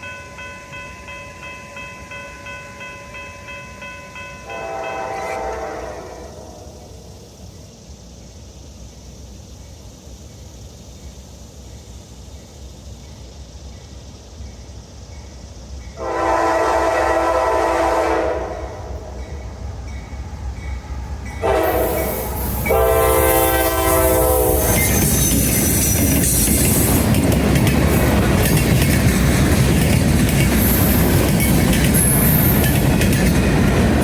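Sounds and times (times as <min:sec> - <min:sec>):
train rumble: 0:00.0 - 0:34.0
locomotive horn blasts: 0:04.4 - 0:06.7, 0:16.0 - 0:19.2, 0:21.4 - 0:24.9.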